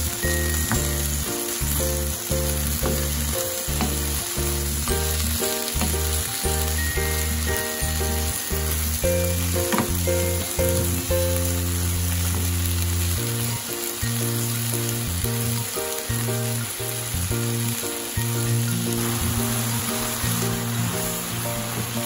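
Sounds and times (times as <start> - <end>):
background music with steady beat: 0.0 - 11.6
vegetables sizzling in a pan: 0.0 - 22.0
spatula knocking on pan: 2.8 - 4.2, 9.6 - 11.0.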